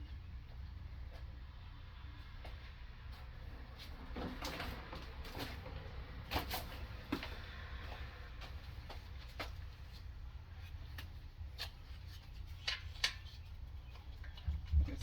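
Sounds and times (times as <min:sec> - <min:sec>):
hand tools clicking and clunking: 0:11.0 - 0:14.8.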